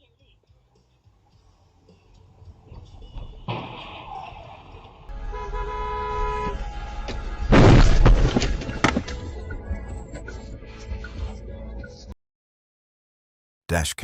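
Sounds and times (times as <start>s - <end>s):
car horn: 5.1s - 8.3s
vehicles crashing: 6.1s - 9.4s.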